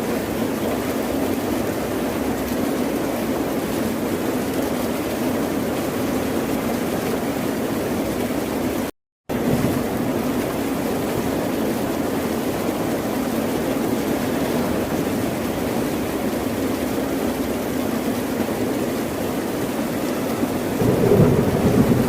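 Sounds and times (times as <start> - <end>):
ocean surf roaring: 12.8 - 17.5, 18.4 - 22.0.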